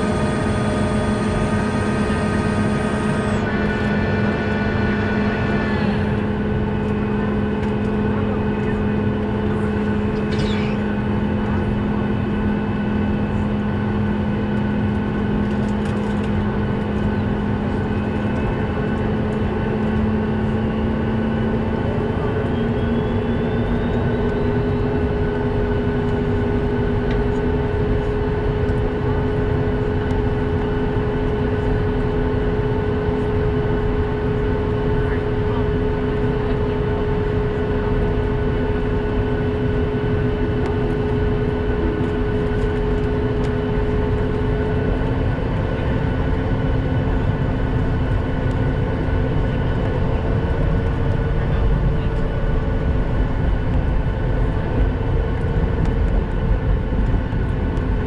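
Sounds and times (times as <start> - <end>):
faint rising whine: 0.0 - 6.3
airplane cabin mechanical hum: 0.0 - 58.0.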